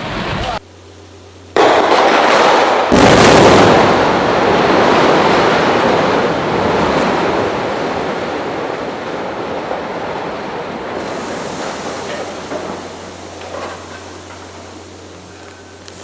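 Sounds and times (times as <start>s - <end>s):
building collapsing roar: 1.6s - 14.3s.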